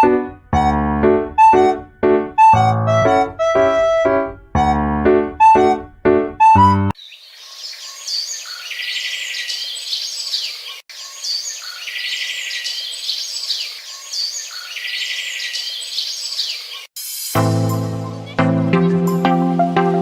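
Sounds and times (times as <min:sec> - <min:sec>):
birds chirping and trilling: 0:07.0 - 0:16.9.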